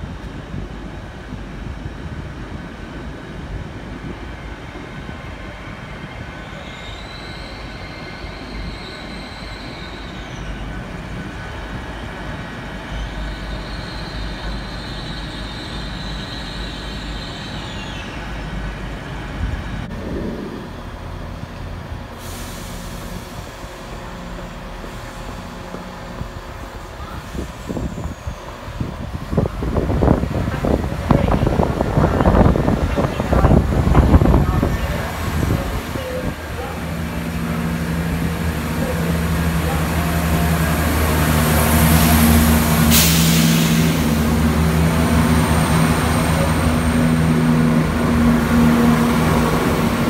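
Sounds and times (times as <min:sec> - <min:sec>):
train rumbling: 0:00.0 - 0:50.0
burst of hiss: 0:42.7 - 0:44.2.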